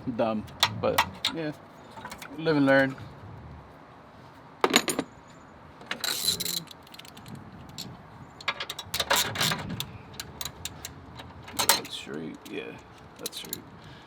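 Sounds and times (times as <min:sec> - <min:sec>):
metal and plastic parts clinking: 0:05.9 - 0:13.6.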